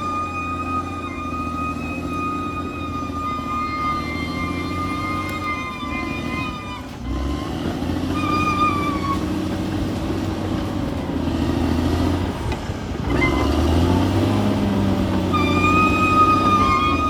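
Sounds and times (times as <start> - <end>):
brief high tone: 0.0 - 9.2
bulldozer diesel engine running: 0.0 - 17.0.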